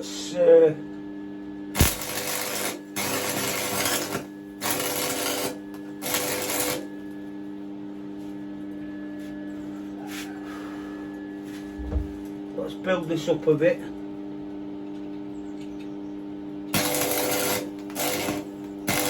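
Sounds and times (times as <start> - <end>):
low electrical hum: 0.0 - 19.0
welding arc crackling: 1.8 - 6.9, 16.7 - 19.0.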